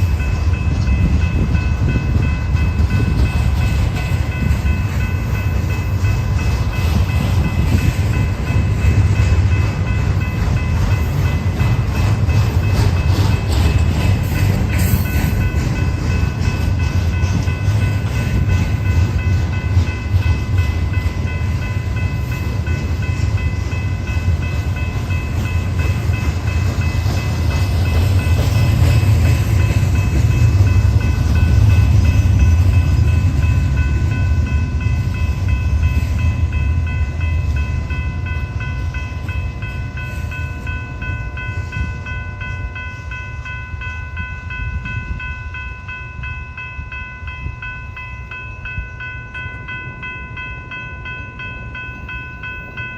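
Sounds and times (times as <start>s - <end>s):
high ringing tones: 0.0s - 52.9s
train wheels rumbling on rails: 0.0s - 52.9s.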